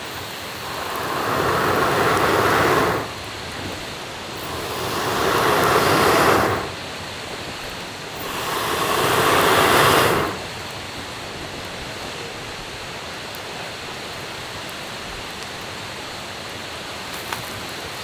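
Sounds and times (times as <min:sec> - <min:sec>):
person blowing on a campfire: 0:00.0 - 0:11.1.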